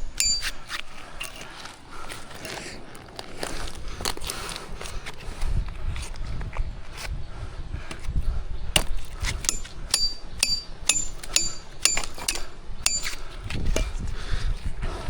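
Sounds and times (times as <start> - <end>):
sharp metallic clinks: 0.0 - 1.4, 8.8 - 13.2.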